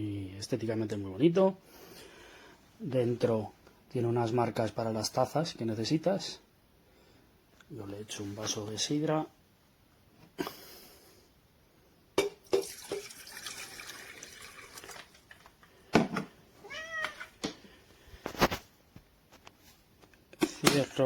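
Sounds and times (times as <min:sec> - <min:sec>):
water poured into kettle: 0:12.4 - 0:15.5.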